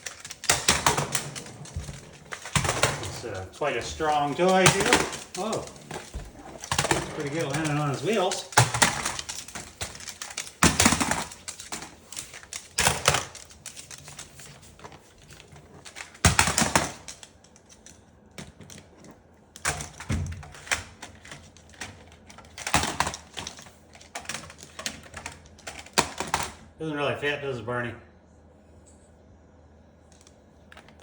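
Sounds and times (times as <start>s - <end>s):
toy truck clicking and clattering: 0.0s - 18.8s.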